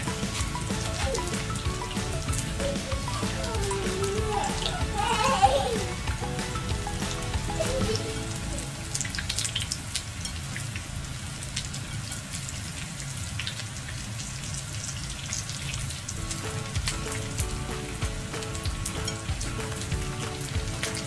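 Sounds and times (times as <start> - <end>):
soft background music: 0.0 - 10.0, 16.2 - 21.0
hot oil sizzling and popping: 0.0 - 21.0.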